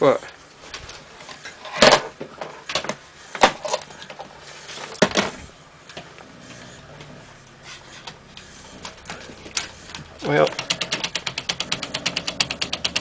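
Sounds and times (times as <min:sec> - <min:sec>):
faint low motor hum: 0:00.0 - 0:13.0
stepper motor clicking and knocking: 0:08.4 - 0:13.0.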